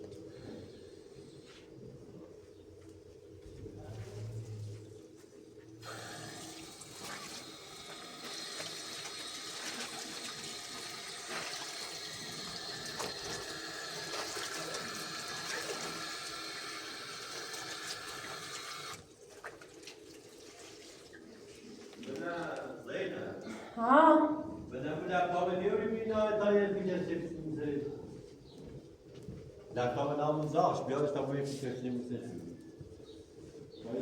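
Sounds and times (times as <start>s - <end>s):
tap water running: 5.8s - 21.2s.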